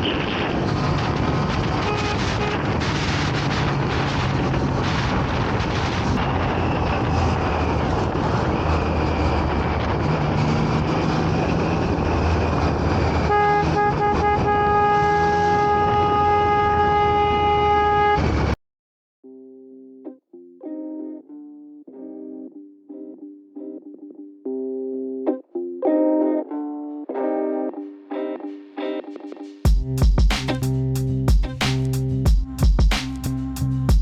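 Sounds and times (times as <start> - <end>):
road and wind noise: 0.0 - 18.6, 29.7 - 34.0
low engine hum: 0.5 - 18.5
vehicle horn blast: 1.8 - 2.9, 13.2 - 18.6.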